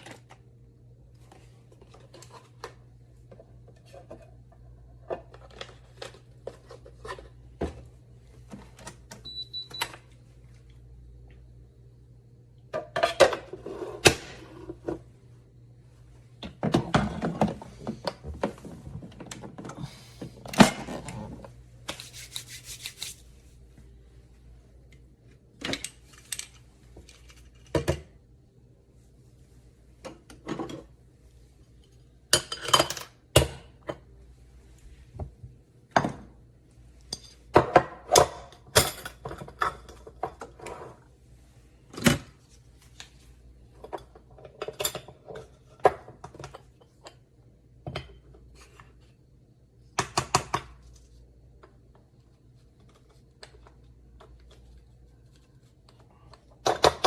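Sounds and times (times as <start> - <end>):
faint steady hum: 0.0 - 57.0
kitchen items clacking and clinking: 21.9 - 23.2.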